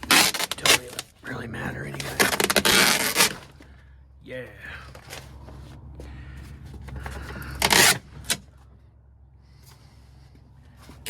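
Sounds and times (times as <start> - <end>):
plastic trim cracking: 0.0 - 1.1
plastic trim scraping and rustling: 0.0 - 1.2, 1.9 - 3.6, 6.9 - 8.4.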